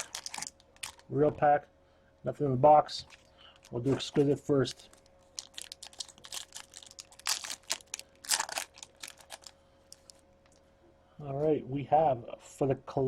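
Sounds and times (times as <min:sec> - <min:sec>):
wrapper crinkling: 0:00.0 - 0:01.1, 0:03.1 - 0:10.6
wrapper ripping: 0:00.0 - 0:01.1, 0:04.9 - 0:10.2.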